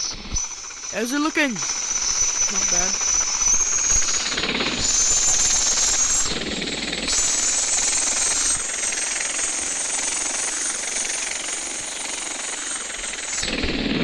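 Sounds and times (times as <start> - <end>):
helicopter turbine and rotor: 0.2 - 14.0.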